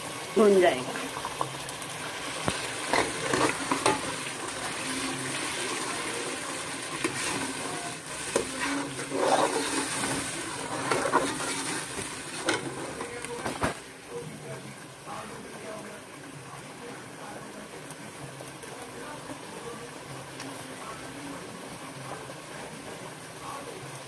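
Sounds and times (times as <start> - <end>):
onion paste sizzling in oil: 0.0 - 24.0
metal spoon scraping pot: 2.9 - 4.1, 8.3 - 13.1.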